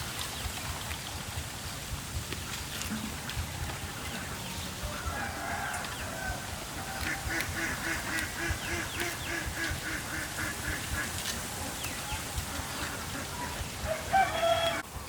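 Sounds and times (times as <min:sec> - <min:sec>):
waterfowl calling: 0:04.0 - 0:14.8.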